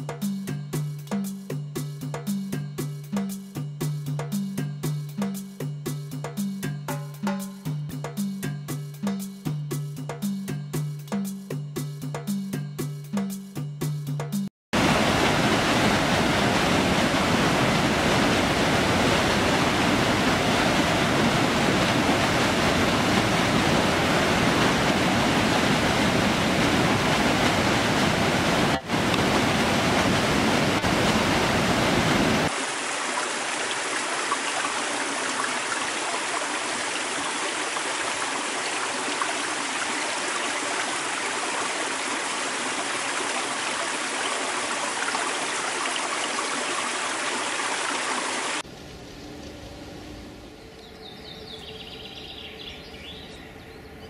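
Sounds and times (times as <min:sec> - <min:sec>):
rushing water roar: 0:14.8 - 0:50.8
stream running: 0:14.8 - 0:53.0.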